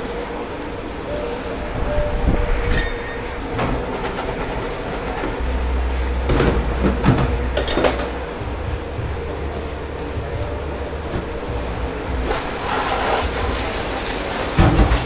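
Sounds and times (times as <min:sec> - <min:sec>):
low machine rumble: 0:00.0 - 0:15.0
dishes and metal kitchenware clattering: 0:01.6 - 0:12.6, 0:13.3 - 0:15.0.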